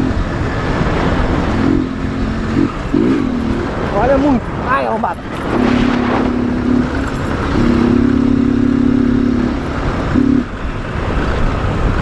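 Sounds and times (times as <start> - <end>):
motorcycle riding: 0.0 - 12.0
wind rushing over microphone: 0.0 - 12.0
steady low tone: 5.2 - 10.7.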